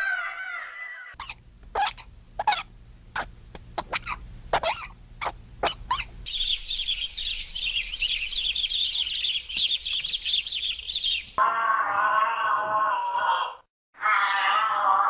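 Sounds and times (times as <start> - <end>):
wavering animal cry: 0.0 - 7.3, 11.4 - 15.0
small birds chirping: 1.2 - 11.4.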